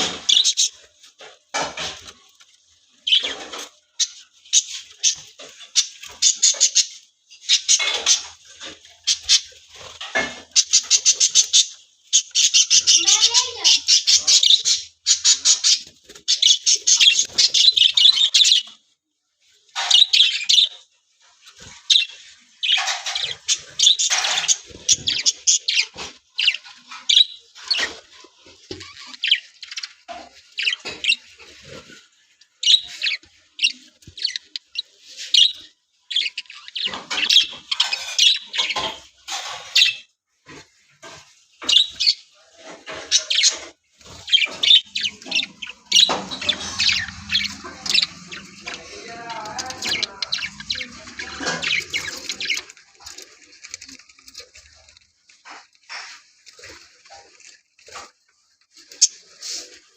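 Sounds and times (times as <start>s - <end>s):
budgerigars chirping: 3.1s - 18.7s, 42.9s - 53.2s.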